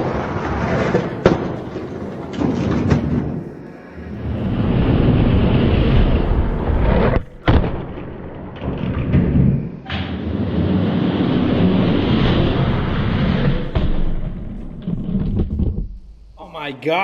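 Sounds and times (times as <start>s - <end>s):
thuds: 0.8s - 3.5s, 7.0s - 16.2s.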